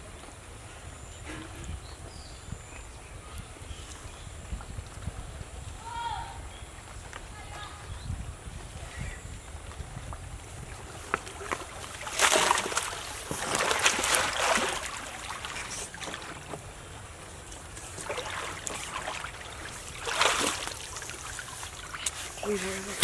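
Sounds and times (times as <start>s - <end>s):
water splashing and sloshing: 0.0s - 23.0s
water dripping and trickling: 0.1s - 23.0s.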